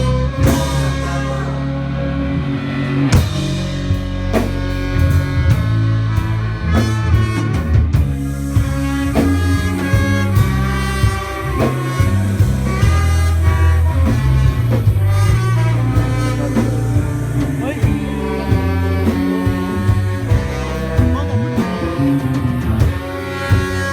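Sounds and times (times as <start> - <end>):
drum kit: 0.0 - 23.9
electric bass: 0.0 - 23.9
horn section playing: 0.0 - 23.9.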